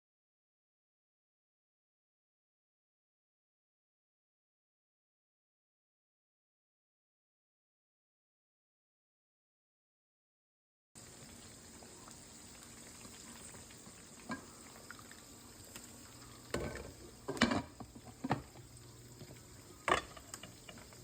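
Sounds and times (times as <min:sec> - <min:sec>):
chicken sizzling in oil: 0:11.0 - 0:21.0
kitchen utensils clattering: 0:16.5 - 0:18.6, 0:19.8 - 0:20.8.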